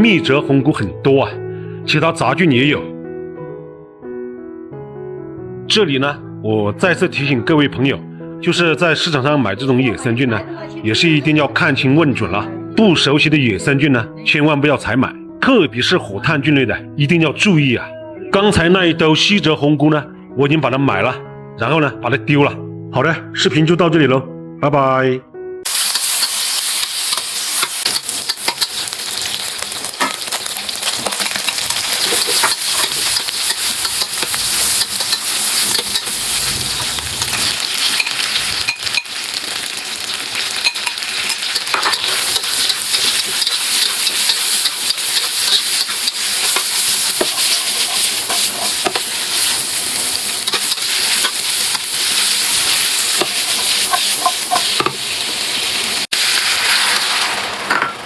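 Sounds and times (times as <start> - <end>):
meat and carrots sizzling in a pan: 25.6 - 58.0
utensil clicking and scraping: 31.1 - 36.2, 41.3 - 49.5.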